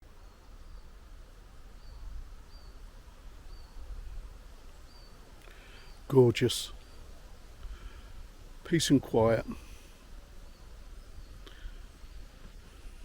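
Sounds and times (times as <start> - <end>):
faint steady hiss: 0.0 - 13.0
wind rumbling on microphone: 9.5 - 13.0.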